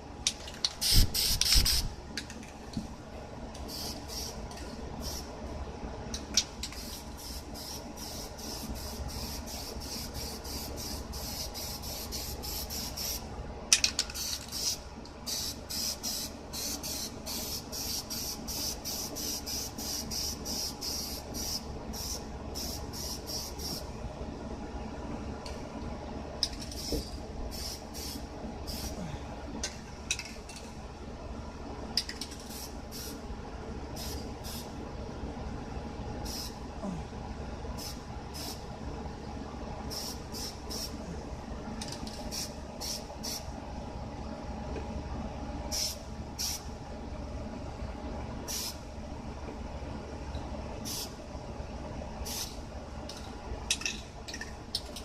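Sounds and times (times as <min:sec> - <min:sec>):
low background hum: 0:00.0 - 0:55.0
spray paint can hissing: 0:00.8 - 0:01.9, 0:03.7 - 0:04.4, 0:06.7 - 0:13.2, 0:14.2 - 0:23.8, 0:26.7 - 0:28.9, 0:36.3 - 0:36.5, 0:37.8 - 0:38.6, 0:39.9 - 0:40.9, 0:42.2 - 0:43.4, 0:45.7 - 0:46.6, 0:48.5 - 0:48.8, 0:50.9 - 0:51.1, 0:52.3 - 0:52.6.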